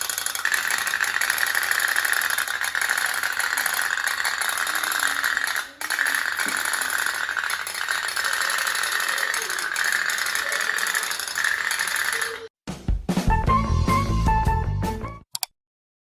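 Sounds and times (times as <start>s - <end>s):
pop-pop boat rattling: 0.0s - 12.5s.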